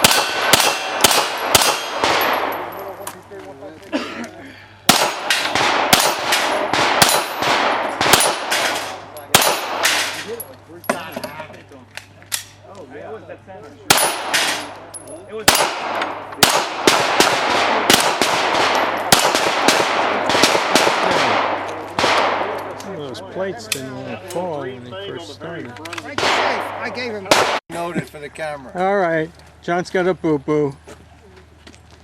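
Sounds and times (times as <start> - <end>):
pistol shots: 0.0 - 2.8, 4.9 - 10.3, 13.9 - 14.8, 15.4 - 22.8, 26.1 - 27.6
bullets ringing off steel: 0.0 - 3.2, 4.9 - 11.4, 13.9 - 22.4.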